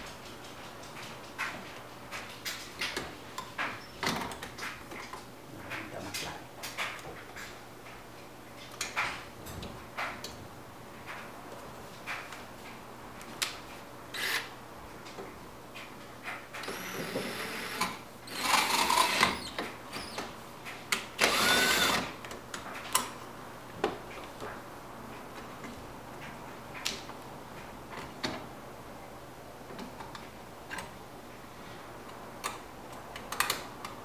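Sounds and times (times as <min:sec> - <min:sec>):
cordless drill driving screws: 0:14.2 - 0:14.5, 0:16.6 - 0:20.2, 0:21.2 - 0:22.1.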